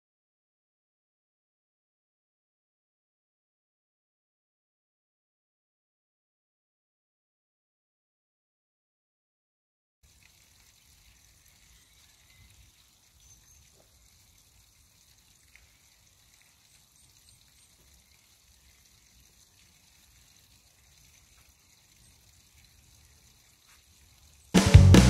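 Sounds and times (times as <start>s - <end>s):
faint ticks: 10.1s - 24.6s.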